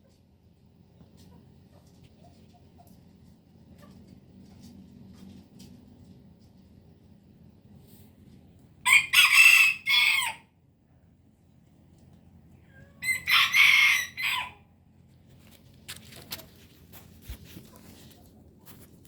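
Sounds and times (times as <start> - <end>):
rooster crowing: 8.8 - 10.5, 13.0 - 14.7.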